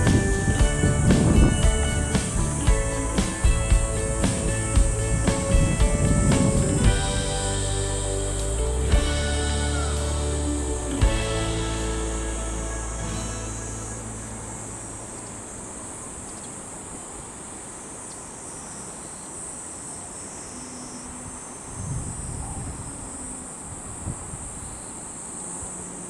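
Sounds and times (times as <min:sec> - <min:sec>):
low rumble: 0:00.0 - 0:15.2.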